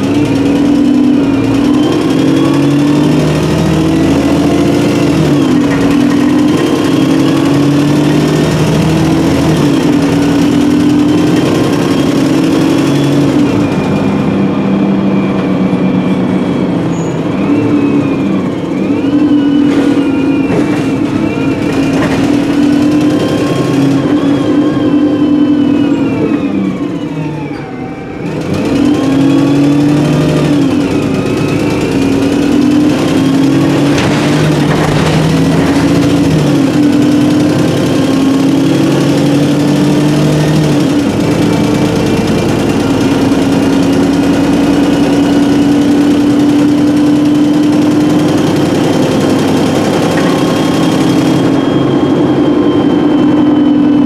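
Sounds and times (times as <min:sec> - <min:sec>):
bus diesel engine under load: 0:00.0 - 0:54.0
gearbox whining: 0:00.0 - 0:54.0.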